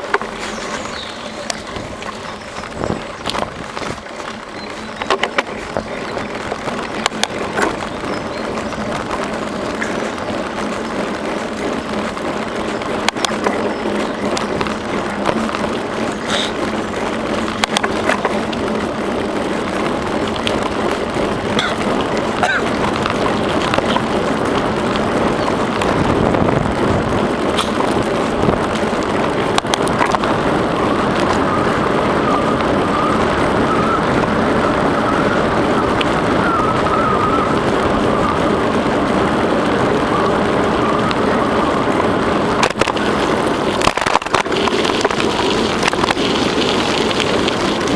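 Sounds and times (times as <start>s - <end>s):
bicycle clicks and rattles: 0.0s - 47.9s
tyre and wind noise: 0.0s - 47.9s.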